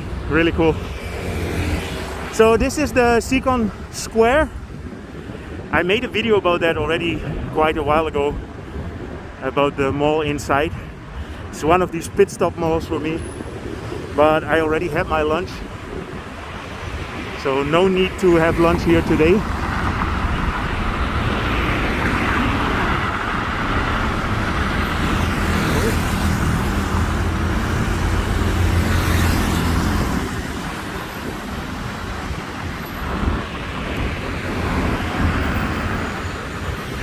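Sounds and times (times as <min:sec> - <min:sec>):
road traffic: 0:00.0 - 0:37.0
vehicle engine rumbling: 0:17.4 - 0:37.0.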